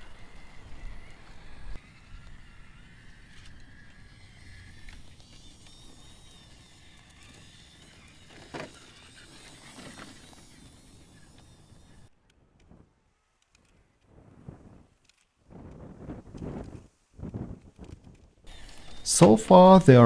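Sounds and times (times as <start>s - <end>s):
electric motor whine: 0.0s - 12.1s, 18.5s - 20.0s
tyres on ground: 18.5s - 20.0s.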